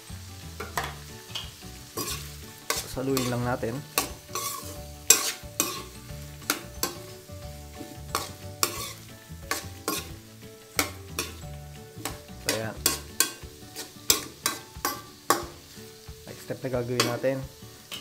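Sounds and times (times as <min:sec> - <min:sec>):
oil sizzling: 0:00.0 - 0:18.0
metal ladle scraping a wok: 0:00.7 - 0:10.2, 0:10.8 - 0:15.5.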